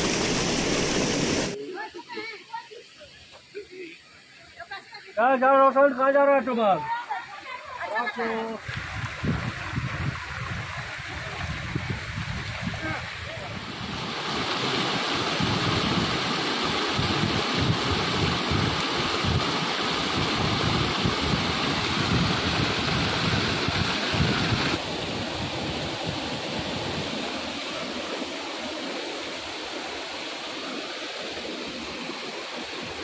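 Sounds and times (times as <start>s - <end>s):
waterfall rushing: 0.0s - 4.3s, 5.5s - 33.0s
wind buffeting microphone: 8.6s - 14.2s, 15.2s - 27.3s.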